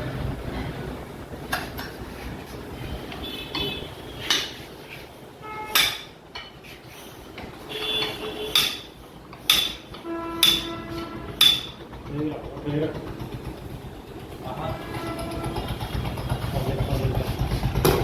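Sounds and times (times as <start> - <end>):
metal clanking on metal: 5.7 - 6.6, 7.3 - 12.3.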